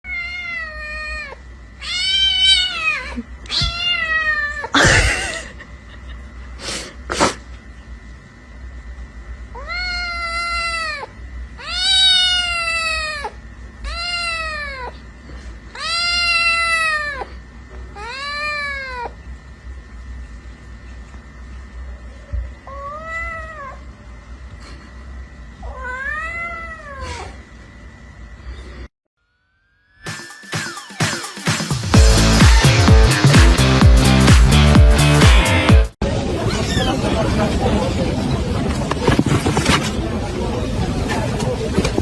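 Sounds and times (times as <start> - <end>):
kitten meowing: 0.1 - 4.7, 9.6 - 13.3.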